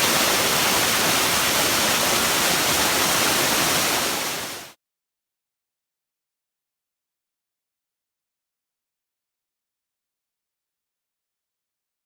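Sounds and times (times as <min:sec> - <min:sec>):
waterfall rushing: 0:00.0 - 0:04.8.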